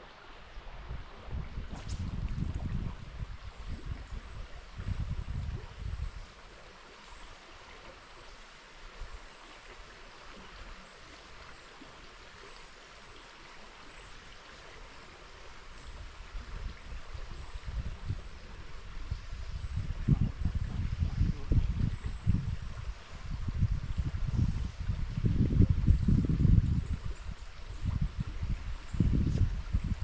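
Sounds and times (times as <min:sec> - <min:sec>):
river water flowing: 0:00.0 - 0:30.0
wind buffeting microphone: 0:00.6 - 0:06.3, 0:15.8 - 0:30.0.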